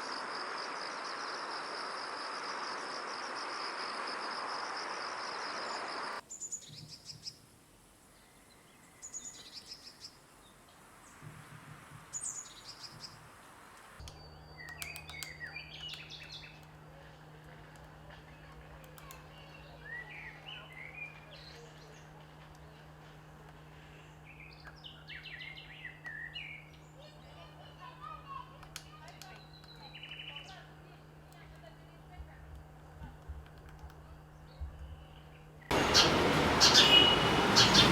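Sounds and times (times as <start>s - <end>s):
small birds chirping: 5.2s - 23.0s, 23.6s - 31.9s, 33.6s - 37.9s
birds calling: 5.6s - 17.0s, 34.2s - 37.9s
steady low hum: 10.1s - 37.9s.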